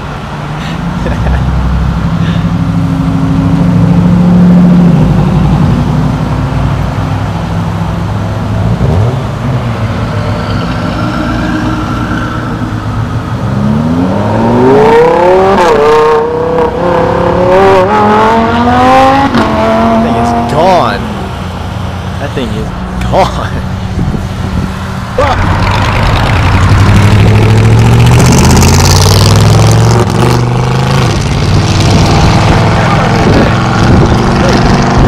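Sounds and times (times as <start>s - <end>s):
traffic rumbling: 0.0s - 35.0s
car accelerating hard: 13.4s - 21.4s, 25.1s - 35.0s.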